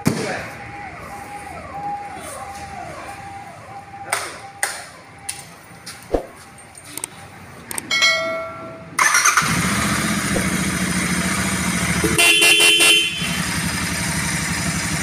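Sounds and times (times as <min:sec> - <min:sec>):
motorcycle engine idling: 0:09.0 - 0:15.0
motorcycle horn: 0:11.9 - 0:13.9.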